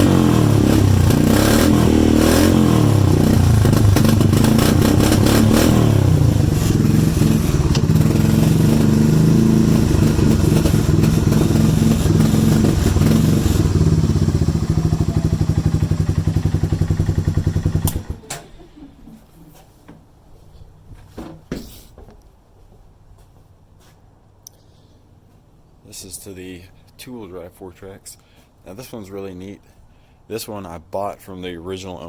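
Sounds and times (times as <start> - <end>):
atv engine running: 0.0 - 18.4.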